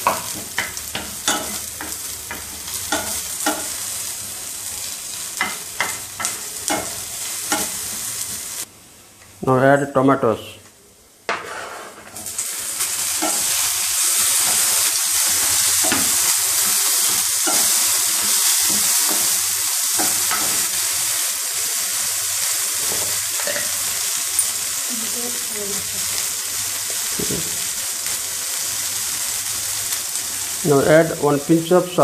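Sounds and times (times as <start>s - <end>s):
vegetables sizzling in hot oil: 0.0s - 8.7s, 11.4s - 32.0s
wooden spatula scraping a pan: 11.3s - 12.3s.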